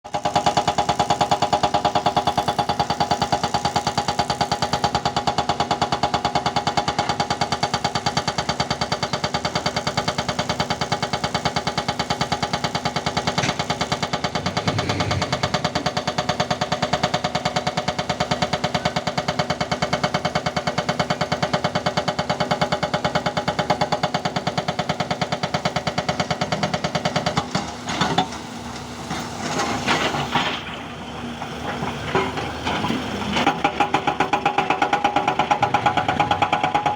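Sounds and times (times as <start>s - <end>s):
diesel digger engine throbbing: 0.1s - 36.9s
engine knocks: 12.0s - 19.8s.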